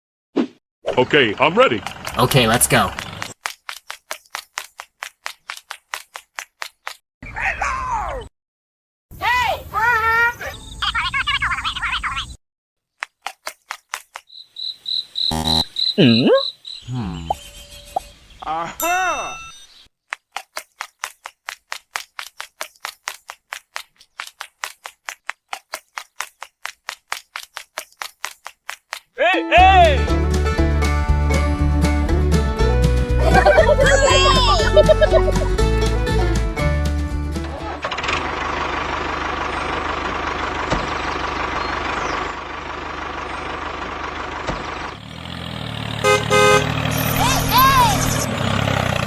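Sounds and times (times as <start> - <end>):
tractor engine chugging: 1.0 - 3.4, 37.4 - 49.0
short beeping tones: 17.0 - 18.2.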